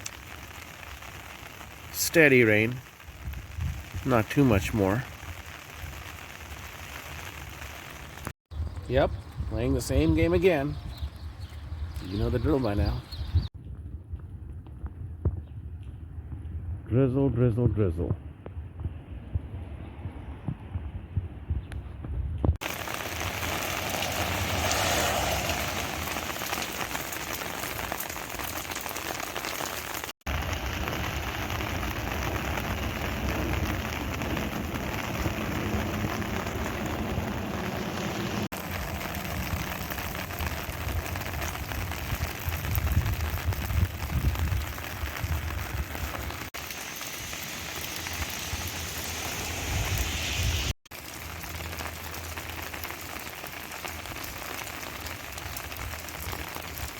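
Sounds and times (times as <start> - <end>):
light rain falling: 0.0 - 9.9, 22.6 - 56.9.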